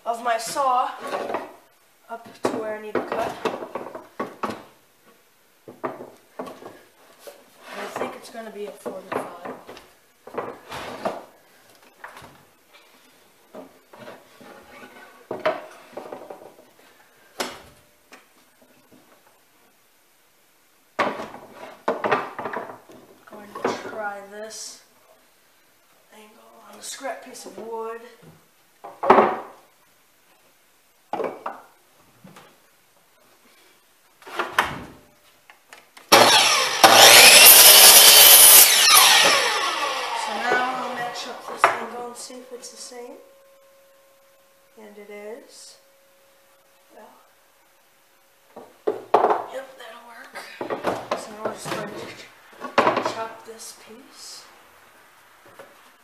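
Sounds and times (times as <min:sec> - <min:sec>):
saw and wood knocks and clunks: 0:36.1 - 0:40.8.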